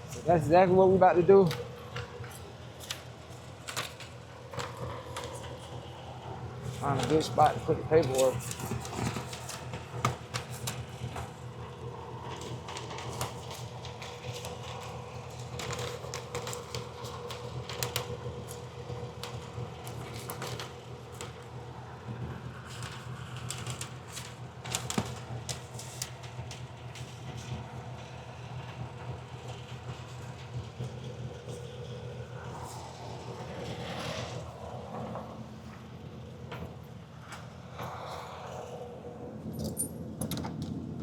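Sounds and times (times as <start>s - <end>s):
clicks and light rattles: 1.3s - 5.8s, 12.3s - 21.5s, 39.6s - 40.8s.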